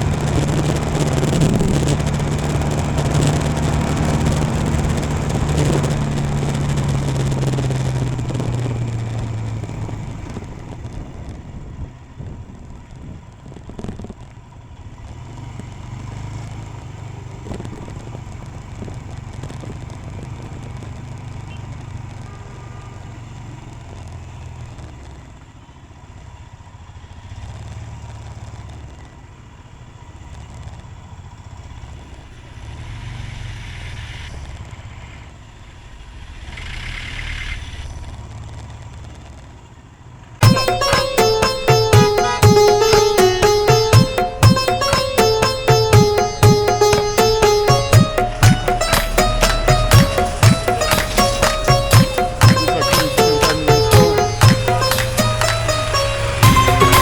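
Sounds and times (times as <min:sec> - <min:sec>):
sharp knocks: 0:40.4 - 0:57.0.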